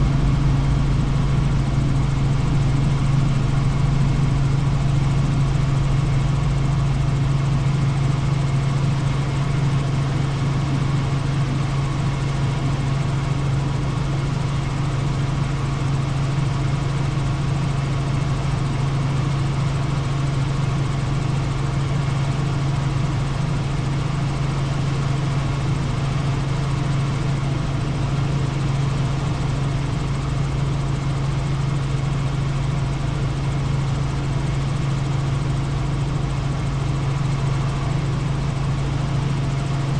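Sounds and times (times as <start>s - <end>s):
helicopter in flight: 0.0s - 39.9s.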